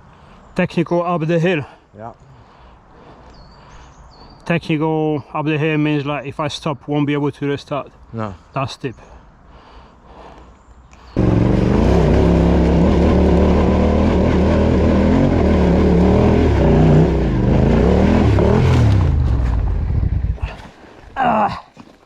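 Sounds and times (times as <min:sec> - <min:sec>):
motorcycle engine revving hard: 0:11.2 - 0:20.4.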